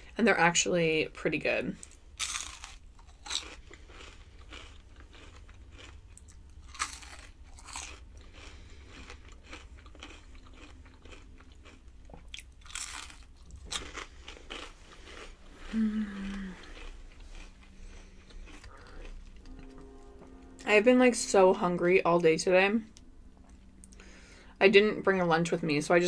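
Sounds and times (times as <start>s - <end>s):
crunching onion ring: 1.8s - 19.5s.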